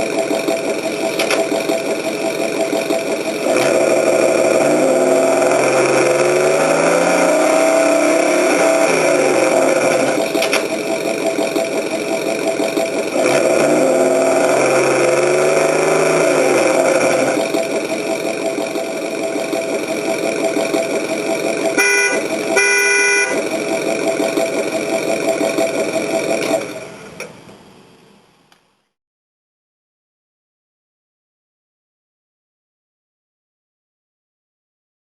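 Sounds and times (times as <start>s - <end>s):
simulated engine sound revving: 0.0s - 27.2s
horn blasts: 21.6s - 23.5s.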